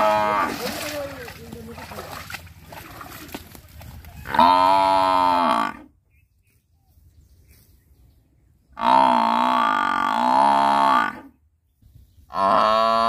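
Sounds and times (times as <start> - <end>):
buffalo lowing: 0.0 - 1.3.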